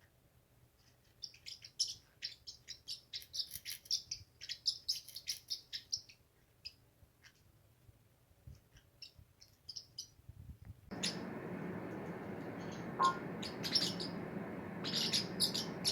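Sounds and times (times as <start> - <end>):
parrot chirping: 10.9 - 15.9.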